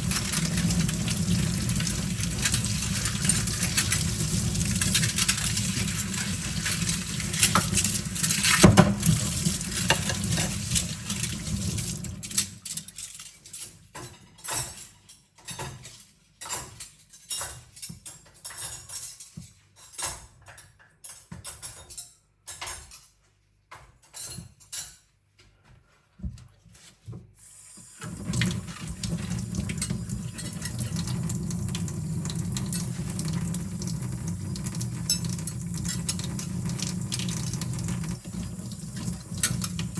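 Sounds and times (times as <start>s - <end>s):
kitchen tap running: 0.0s - 13.0s, 27.4s - 39.9s
cutlery clinking: 0.1s - 25.1s, 35.0s - 37.6s, 39.3s - 39.9s.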